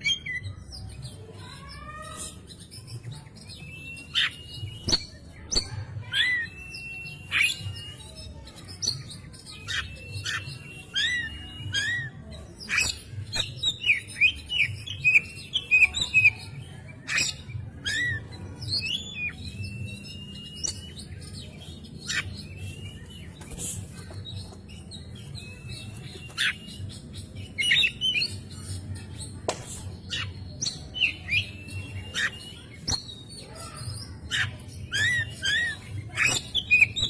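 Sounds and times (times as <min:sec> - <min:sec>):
bird singing whistles: 0:06.2 - 0:07.8, 0:09.7 - 0:12.1, 0:18.8 - 0:23.0, 0:30.1 - 0:33.1, 0:34.3 - 0:37.0.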